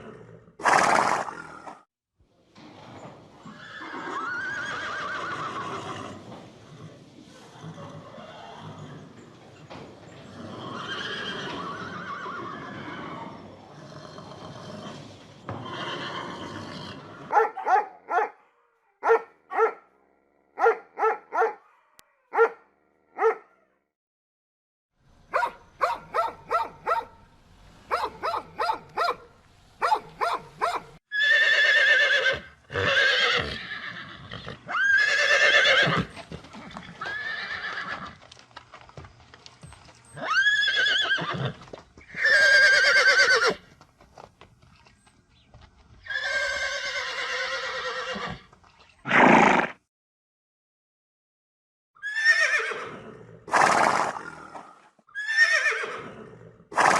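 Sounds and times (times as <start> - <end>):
horses neighing: 0.0 - 1.8, 3.4 - 17.4, 29.8 - 38.3, 40.1 - 43.7, 46.0 - 49.8, 52.0 - 56.9.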